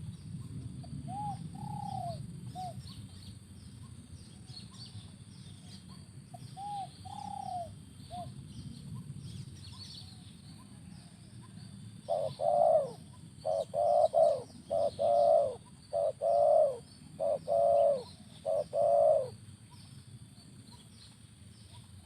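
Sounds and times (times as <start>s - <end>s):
small birds chirping: 0.0s - 22.0s
dove cooing: 1.0s - 2.9s, 6.4s - 8.4s, 12.0s - 19.4s.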